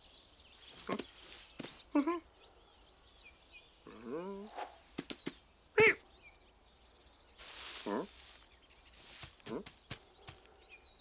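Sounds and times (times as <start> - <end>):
faint high-pitched background tone: 0.0 - 1.0
cartoon animal calls: 5.8 - 6.0.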